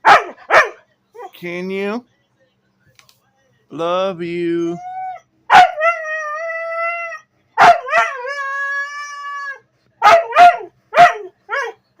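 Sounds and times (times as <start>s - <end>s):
dog yipping: 0.0s - 1.3s, 4.8s - 6.4s, 7.1s - 9.2s, 10.0s - 11.8s
dog howling: 4.7s - 11.8s
dog yelping: 4.8s - 11.8s.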